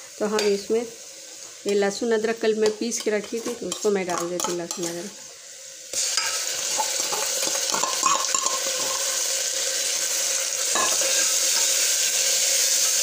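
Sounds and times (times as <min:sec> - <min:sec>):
paste sizzling in hot oil: 0:00.0 - 0:13.0
steel spoon scraping a pot: 0:06.2 - 0:09.2.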